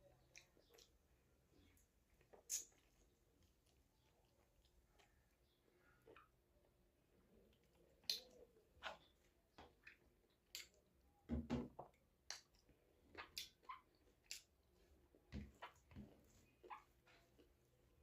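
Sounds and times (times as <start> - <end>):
person chewing with mouth smacks: 0.1 - 6.4, 7.3 - 10.9, 11.8 - 15.9.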